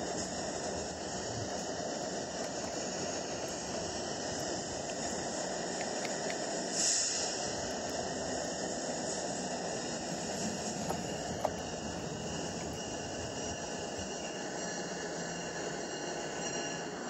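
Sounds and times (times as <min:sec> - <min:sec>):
train rolling past: 0:00.0 - 0:17.0
short hiss: 0:05.8 - 0:11.6.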